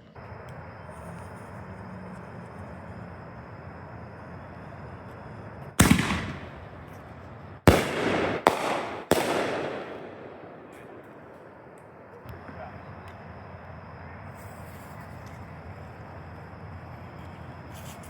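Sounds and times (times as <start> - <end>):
firework launch boom: 5.8 - 7.0, 7.7 - 12.2
firework breaks: 5.8 - 12.2.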